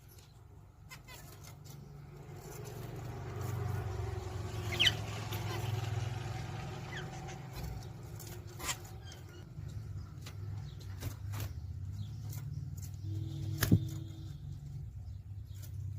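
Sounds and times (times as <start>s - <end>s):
faint bird chirp: 0.0s - 15.9s.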